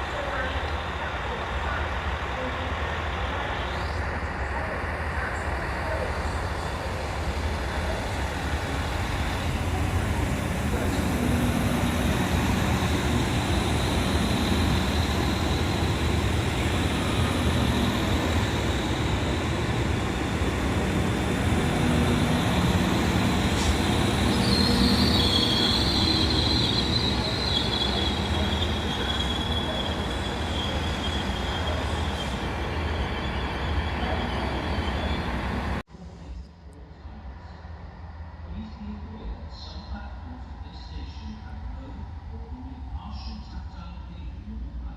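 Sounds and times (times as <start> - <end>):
train rolling past: 0.0 - 35.8
wheel squeal: 21.6 - 35.8.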